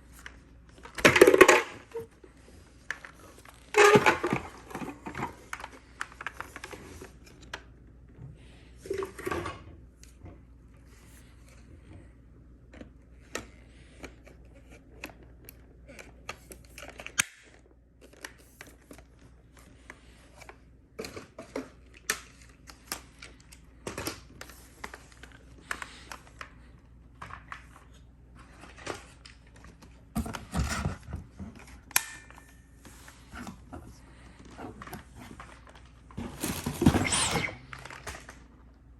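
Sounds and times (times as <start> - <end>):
packaging rustling: 33.1 - 38.6.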